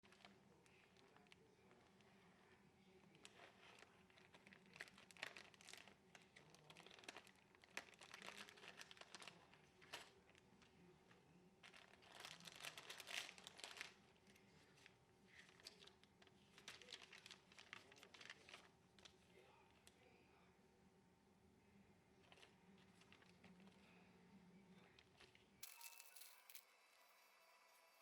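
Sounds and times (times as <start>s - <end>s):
plastic packaging crinkling: 3.1s - 10.4s, 11.6s - 19.2s, 25.0s - 28.0s.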